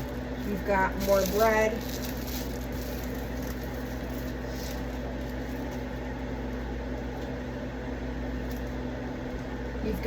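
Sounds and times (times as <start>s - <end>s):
kitchen appliance electrical hum: 0.0s - 10.0s.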